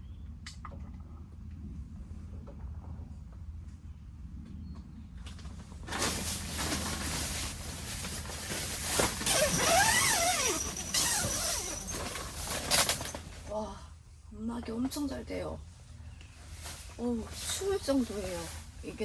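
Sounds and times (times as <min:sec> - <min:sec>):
tent fabric rustling: 0:05.8 - 0:13.6, 0:16.3 - 0:19.0
fabric squeaking: 0:06.0 - 0:13.5.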